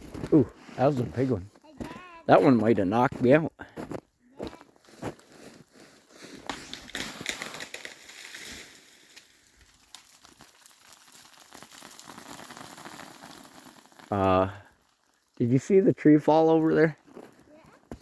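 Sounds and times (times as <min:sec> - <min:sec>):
ice pattering through trees: 0:04.5 - 0:18.0.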